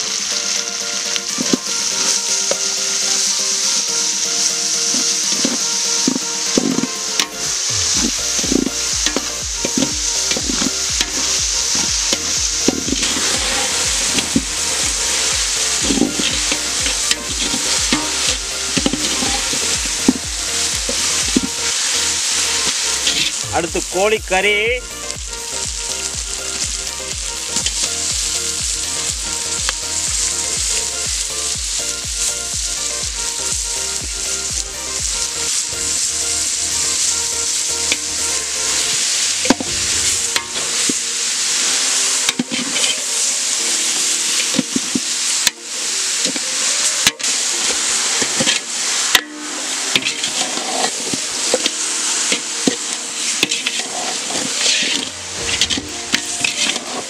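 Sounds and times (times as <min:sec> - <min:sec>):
chicken sizzling in oil: 0:00.0 - 0:57.0
metal ladle scraping a pot: 0:05.3 - 0:23.4, 0:42.2 - 0:43.1, 0:48.2 - 0:57.0.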